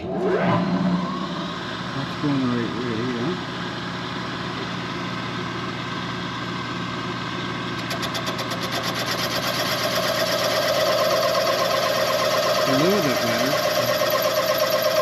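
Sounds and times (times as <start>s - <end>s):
machine spindle humming: 0.0s - 15.0s
cutter pulsing: 7.8s - 15.0s.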